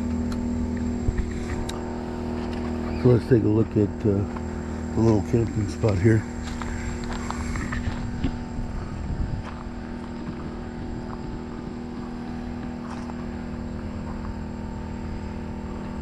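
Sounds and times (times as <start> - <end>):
generator running: 0.0 - 16.0.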